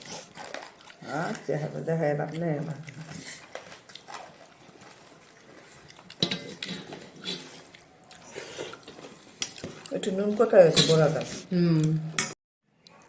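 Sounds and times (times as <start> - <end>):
plates and utensils clinking: 6.2 - 7.6, 10.6 - 11.3.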